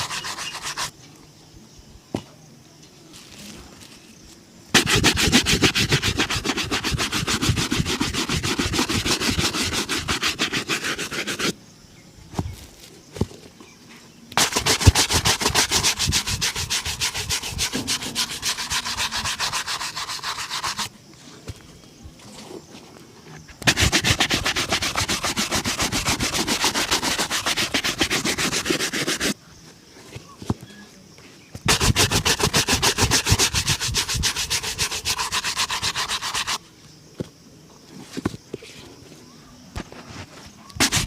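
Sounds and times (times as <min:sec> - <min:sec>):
shoe being buffed: 0:00.0 - 0:00.9, 0:04.8 - 0:11.6, 0:14.4 - 0:20.9, 0:23.6 - 0:29.4, 0:31.7 - 0:36.6, 0:40.8 - 0:41.0.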